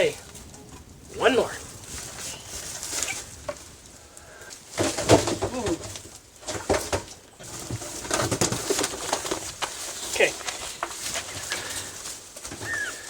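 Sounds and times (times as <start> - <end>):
low cooing bird calls: 1.6 - 3.4, 11.4 - 13.0.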